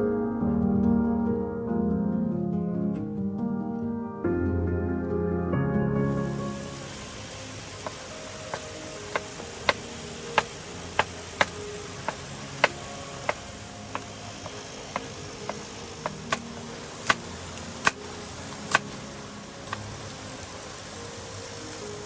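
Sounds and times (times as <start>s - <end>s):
steady hiss: 6.0s - 22.0s.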